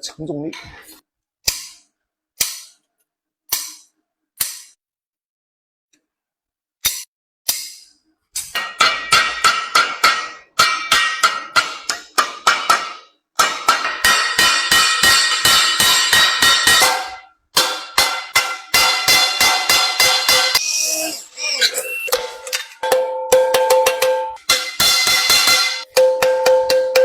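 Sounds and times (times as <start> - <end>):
hammer striking metal ladle: 8.5 - 20.6, 22.0 - 27.0.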